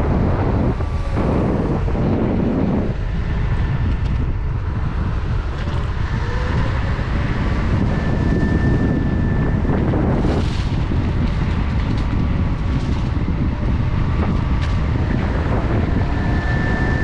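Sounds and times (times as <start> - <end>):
electric motor whine: 0.0 - 17.0
wind buffeting microphone: 0.0 - 17.0.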